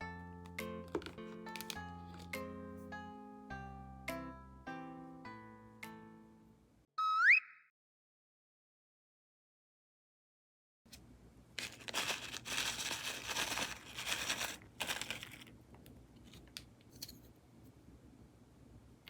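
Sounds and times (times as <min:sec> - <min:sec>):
plastic packaging crinkling and tearing: 0:00.9 - 0:02.3, 0:11.6 - 0:15.6.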